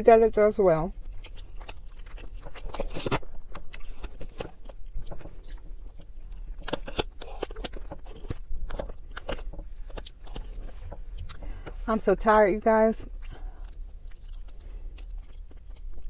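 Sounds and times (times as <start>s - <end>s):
steady low hum: 0.0s - 16.0s
close-up chewing: 0.9s - 11.9s, 13.0s - 16.0s.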